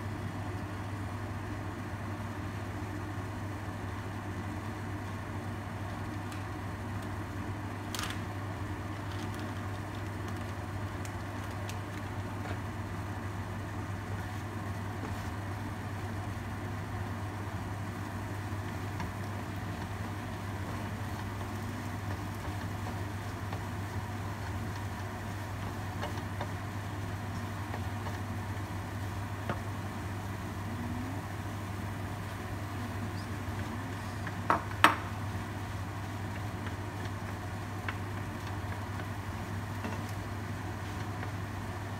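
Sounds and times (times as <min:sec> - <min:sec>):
food frying in a pan: 0:00.0 - 0:41.9
steady low hum: 0:00.0 - 0:41.9
wooden spatula stirring: 0:14.1 - 0:15.6, 0:18.6 - 0:29.9, 0:32.2 - 0:41.9.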